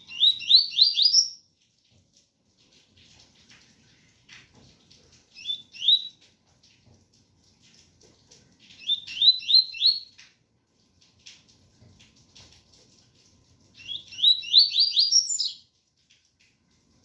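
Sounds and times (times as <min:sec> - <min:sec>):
bird whistling song: 0:00.0 - 0:01.4, 0:05.4 - 0:06.2, 0:08.8 - 0:10.1, 0:13.8 - 0:15.7
faint rain: 0:00.0 - 0:17.0.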